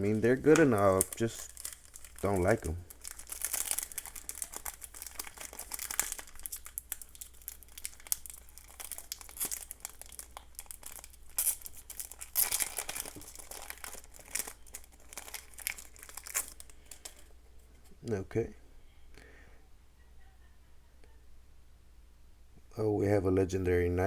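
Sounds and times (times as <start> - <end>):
foil wrapper crinkling and tearing: 0.0 - 17.4.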